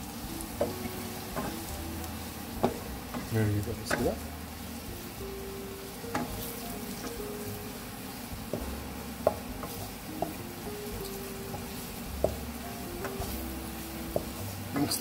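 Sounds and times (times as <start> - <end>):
onions sizzling in hot oil: 0.0 - 15.0
spatula knocking against pan: 8.5 - 10.4, 11.4 - 13.4, 14.1 - 14.4.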